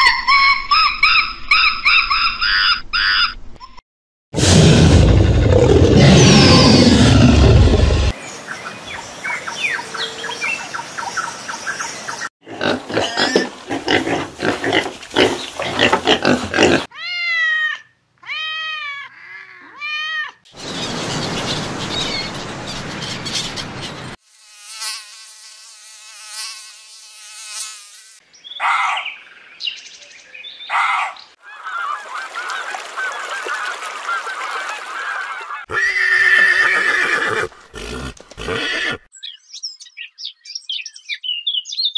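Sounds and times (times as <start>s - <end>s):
dinosaur roar: 4.4s - 8.1s.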